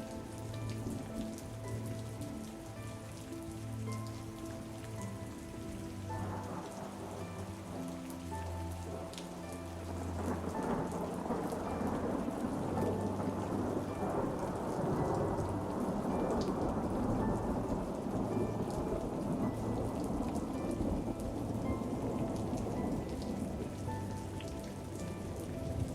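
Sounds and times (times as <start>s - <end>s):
faint held musical notes: 0.0s - 25.9s
steady rain: 0.0s - 25.9s
thunder rumbling: 9.9s - 25.9s.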